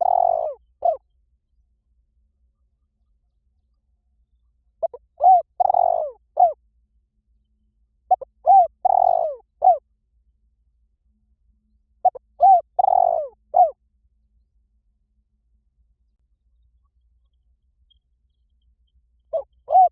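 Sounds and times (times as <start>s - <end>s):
dove cooing: 0.0s - 1.0s, 4.8s - 6.6s, 8.1s - 9.8s, 12.0s - 13.8s, 19.3s - 19.9s.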